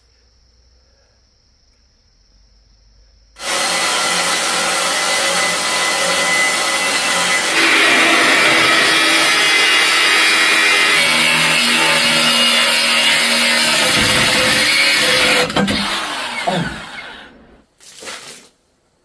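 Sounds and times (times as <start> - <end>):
power tool running: 3.4 - 17.6.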